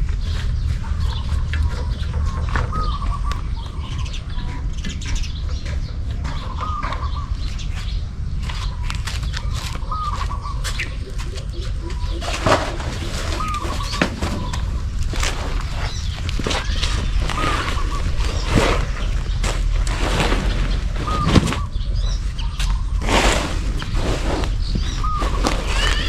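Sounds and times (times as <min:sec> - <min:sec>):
bird chirping: 0:00.0 - 0:26.0
low steady rumble: 0:00.0 - 0:26.0
clicks and rustles: 0:12.1 - 0:26.0.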